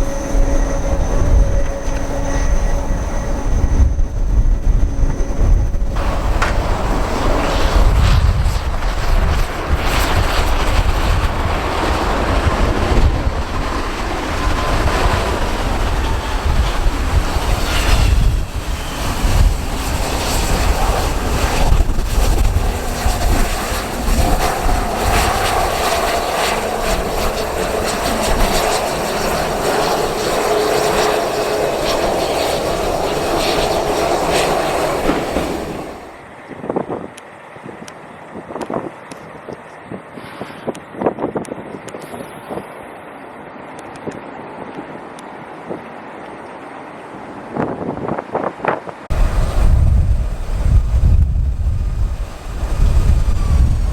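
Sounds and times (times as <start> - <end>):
jet engines whining: 0.0 - 38.4, 49.1 - 53.9
wind rumble on microphone: 0.0 - 42.8, 47.4 - 53.9.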